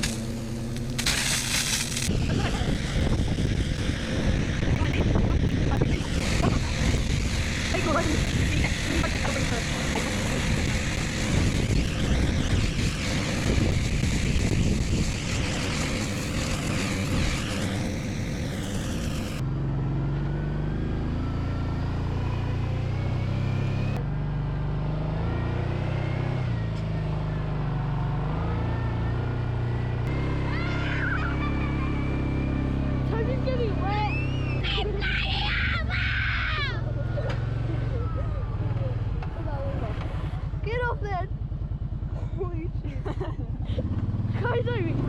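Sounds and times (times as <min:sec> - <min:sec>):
rough noisy rush: 0:00.0 - 0:19.4
engine revving: 0:00.0 - 0:45.0.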